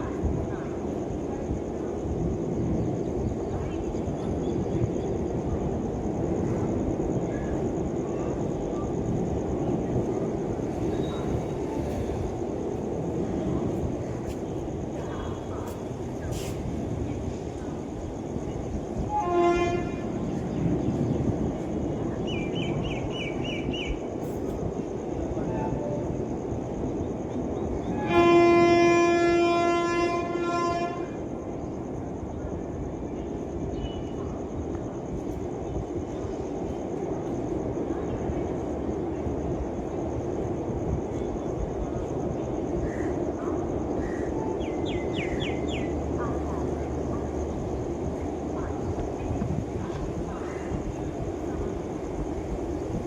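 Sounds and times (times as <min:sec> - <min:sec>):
train rumbling past: 0:00.0 - 0:53.0
locomotive horn blast: 0:19.1 - 0:20.2, 0:28.0 - 0:31.2.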